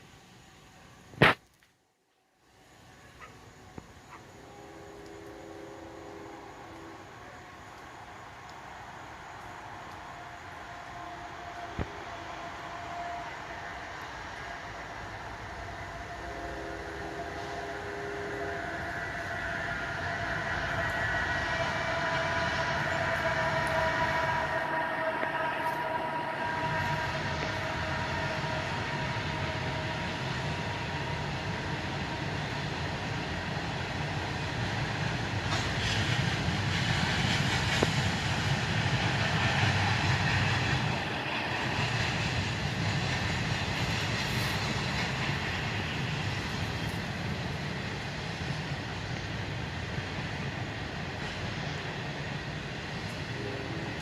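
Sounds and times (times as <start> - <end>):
freight train rumbling past: 2.4 - 54.0
chord of steady tones: 2.5 - 35.7.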